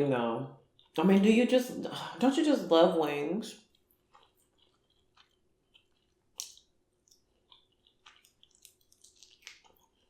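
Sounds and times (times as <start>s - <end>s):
food crunch: 3.6s - 10.0s
mouth chewing and smacking: 3.6s - 10.0s.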